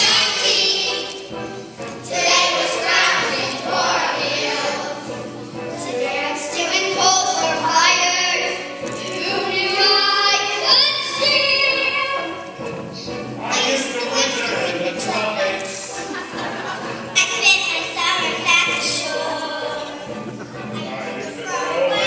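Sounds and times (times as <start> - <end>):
children singing in chorus: 0.0 - 12.5, 18.0 - 20.2
backing music: 0.0 - 22.0.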